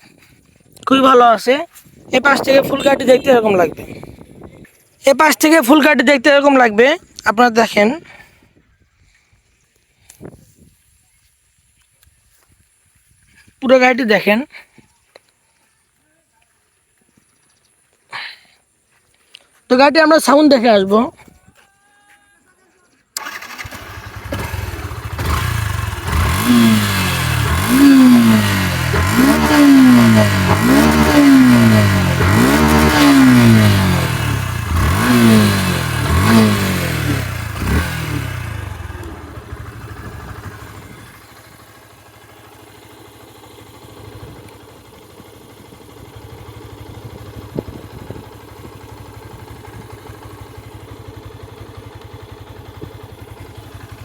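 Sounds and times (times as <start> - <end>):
motorcycle engine revving: 23.2 - 54.0.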